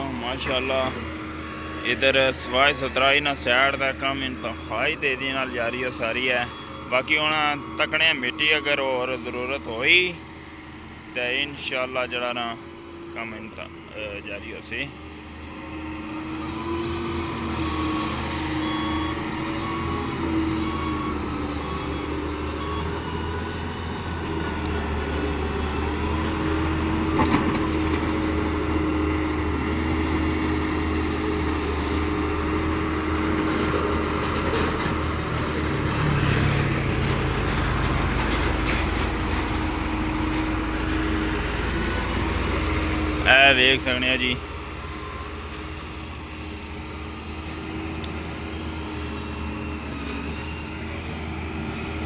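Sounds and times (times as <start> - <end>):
reversing alarm beeping: 0.0 - 14.7, 16.4 - 26.1
diesel engine of heavy machinery: 0.0 - 52.0.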